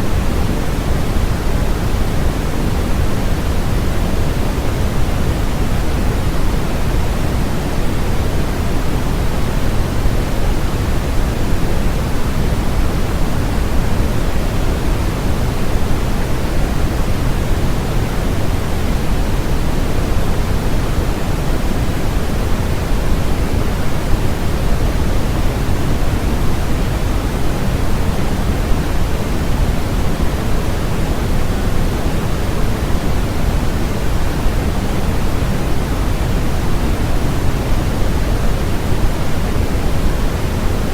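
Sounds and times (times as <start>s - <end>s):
electronic white noise hiss: 0.0s - 40.9s.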